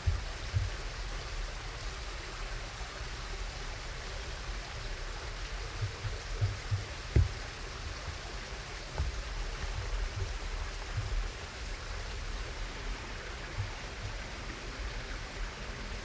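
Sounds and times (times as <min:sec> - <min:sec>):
soft low thuds: 0:00.0 - 0:01.5, 0:04.8 - 0:14.4
sharp knocks: 0:05.8 - 0:08.2.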